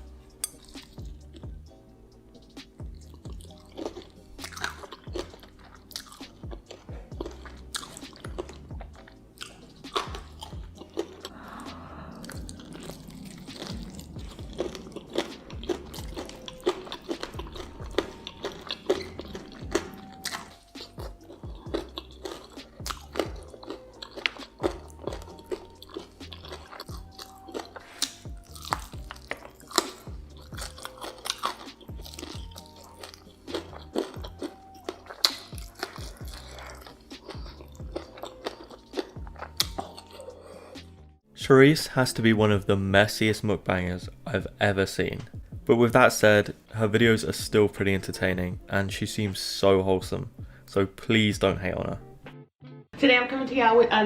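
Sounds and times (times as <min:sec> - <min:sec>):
wet chewing: 0:02.9 - 0:41.1
crunching bites: 0:03.5 - 0:40.9.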